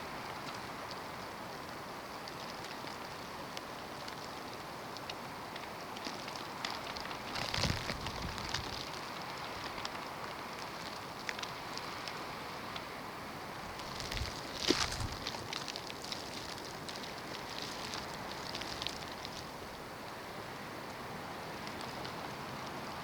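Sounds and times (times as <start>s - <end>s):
wind blowing: 13.5s - 16.0s.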